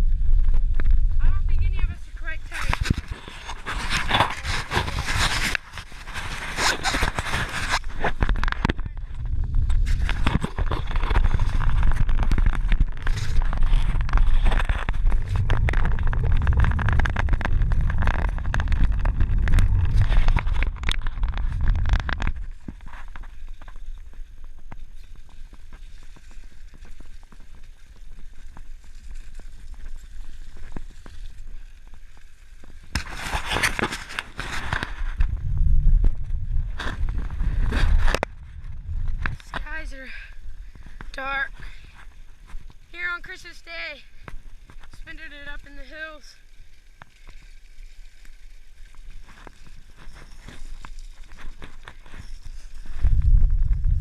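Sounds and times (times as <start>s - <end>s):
wind buffeting microphone: 0.0s - 22.8s, 34.6s - 41.2s, 52.7s - 54.0s
bike tyre noise: 0.0s - 54.0s.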